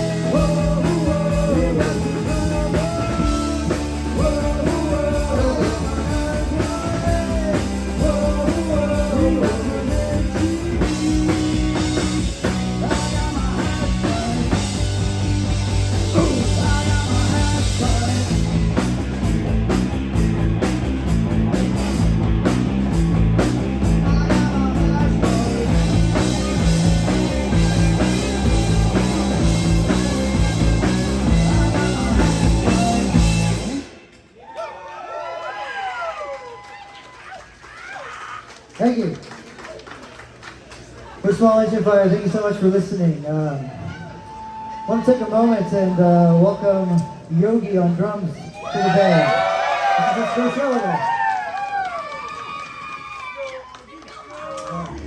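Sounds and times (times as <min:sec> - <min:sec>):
person singing: 0:00.0 - 0:11.3, 0:12.7 - 0:14.8, 0:16.0 - 0:18.5, 0:23.9 - 0:33.2
rock band playing: 0:00.0 - 0:34.3.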